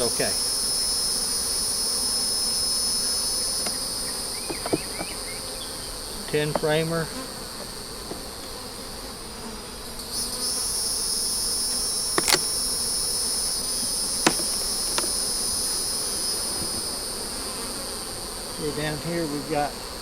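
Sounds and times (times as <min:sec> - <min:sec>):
high steady insect trill: 0:00.0 - 0:08.8, 0:10.0 - 0:19.8
honey bees humming: 0:00.0 - 0:20.0
sharp clicks: 0:12.2 - 0:12.5.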